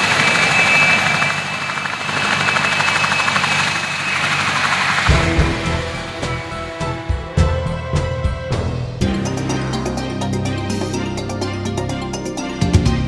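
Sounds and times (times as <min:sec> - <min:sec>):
helicopter rotor and engine: 0:00.0 - 0:07.5
music: 0:05.1 - 0:13.0.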